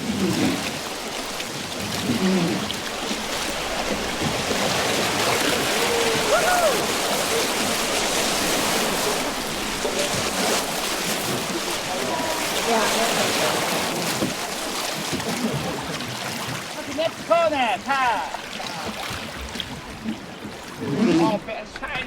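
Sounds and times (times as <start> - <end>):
rushing river water: 0.0 - 22.0
faint voices: 11.4 - 14.2.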